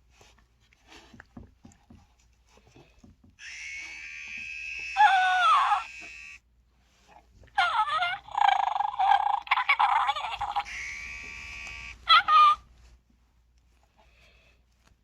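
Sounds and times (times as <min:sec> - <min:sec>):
electronic toy chirps: 0:10.4 - 0:12.0.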